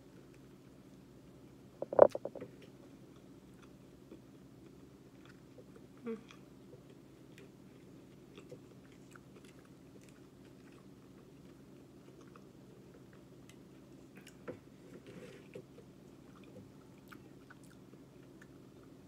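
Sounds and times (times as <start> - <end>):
low steady hum: 0.0 - 19.0
chewing and biting food: 6.8 - 14.5, 15.5 - 19.0.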